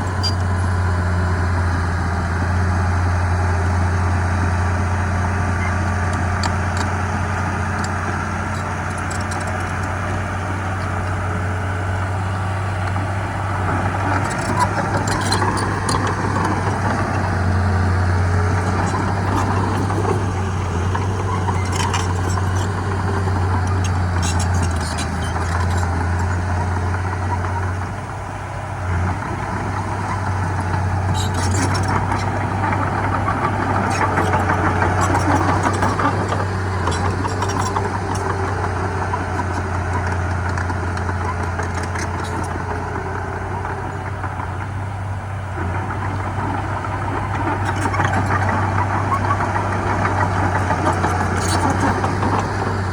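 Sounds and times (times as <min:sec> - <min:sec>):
heavy diesel engine running: 0:00.0 - 0:52.9
clicks and rattles: 0:06.0 - 0:11.2, 0:14.0 - 0:26.4, 0:30.1 - 0:42.6, 0:46.8 - 0:52.9.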